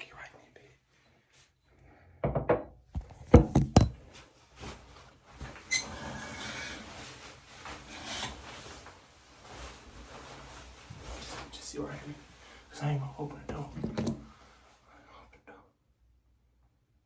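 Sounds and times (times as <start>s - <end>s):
knocks and thuds on wood: 2.3s - 4.0s
rubbing and shuffling: 3.0s - 5.7s, 6.8s - 12.7s.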